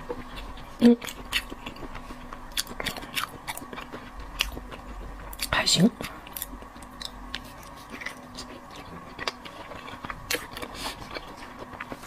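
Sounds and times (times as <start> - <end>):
faint steady hum: 0.0 - 12.0
person chewing: 0.0 - 12.0.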